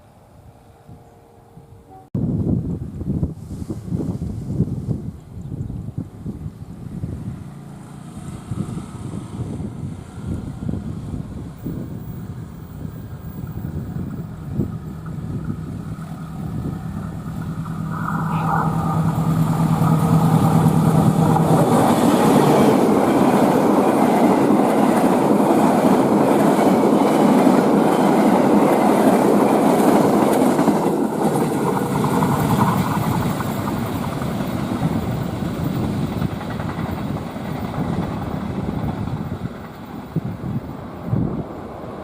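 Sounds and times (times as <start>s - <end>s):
locomotive engine hum: 6.6s - 27.9s
train wheels clattering on rails: 19.6s - 40.7s.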